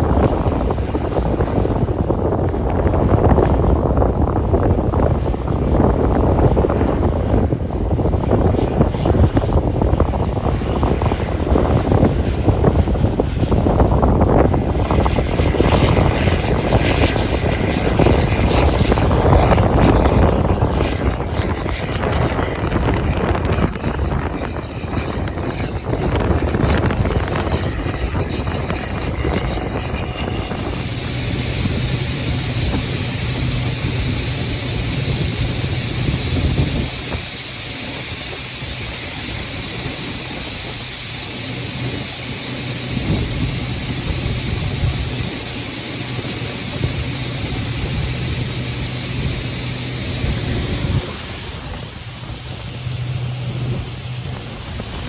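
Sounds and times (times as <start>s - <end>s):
farm machine engine running: 2.6s - 8.4s, 12.6s - 55.0s
steady hiss: 20.7s - 55.0s.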